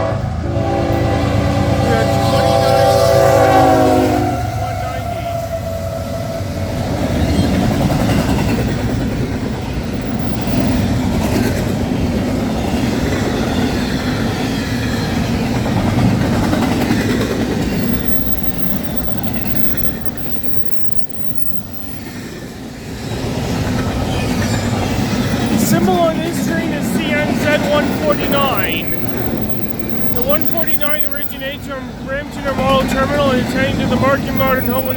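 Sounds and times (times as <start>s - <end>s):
freight train rumbling past: 0.0s - 34.9s
wheels clacking over rail joints: 6.8s - 22.3s, 27.2s - 31.5s.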